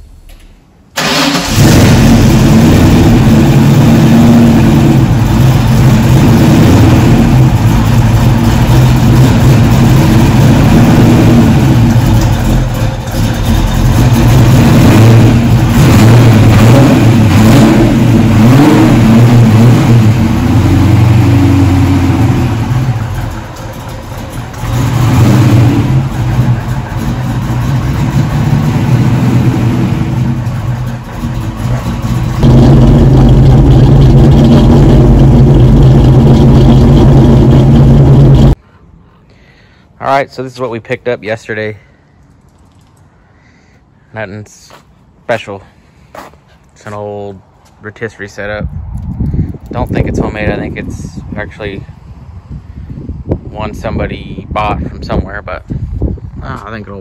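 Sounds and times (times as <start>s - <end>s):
car engine starting and revving: 1.0s - 38.6s.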